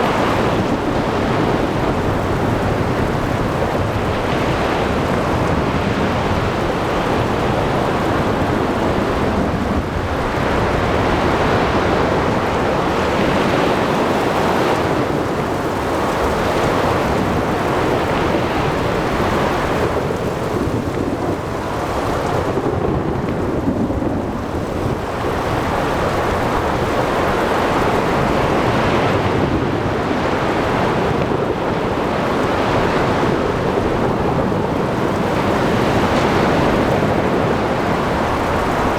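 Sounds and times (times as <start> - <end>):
heavy rain: 0.0 - 38.9
surf surging: 0.0 - 38.9
wind: 0.0 - 38.9.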